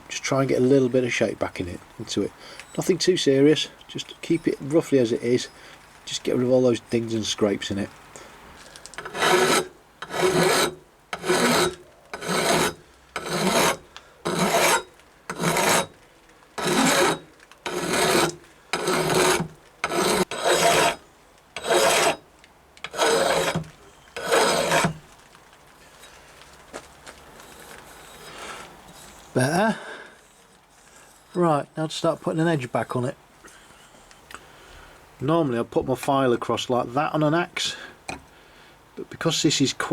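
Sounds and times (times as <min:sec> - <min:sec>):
file rasping on steel: 0:09.0 - 0:15.9, 0:16.6 - 0:21.0, 0:21.6 - 0:22.2, 0:22.8 - 0:25.0, 0:27.4 - 0:29.2.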